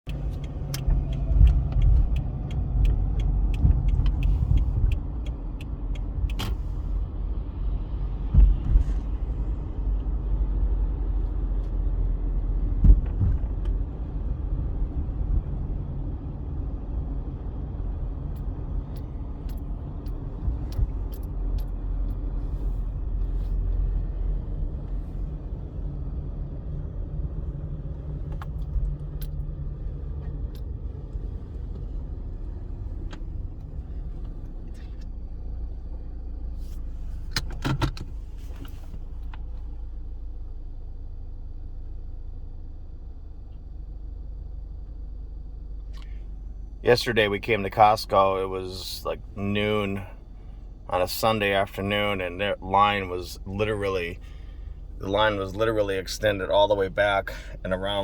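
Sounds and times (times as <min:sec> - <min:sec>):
car engine rumbling: 0:00.0 - 0:58.0
regular ticking: 0:00.1 - 0:06.4.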